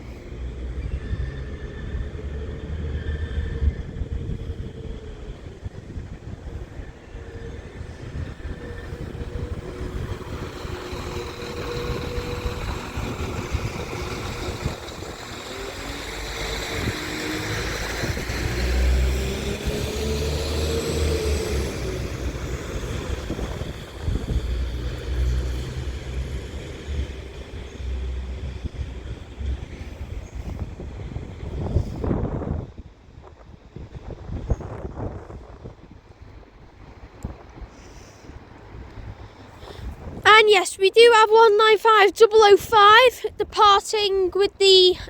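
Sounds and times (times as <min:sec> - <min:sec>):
rising engine whine: 0:00.0 - 0:32.8
diesel train engines: 0:00.0 - 0:45.0.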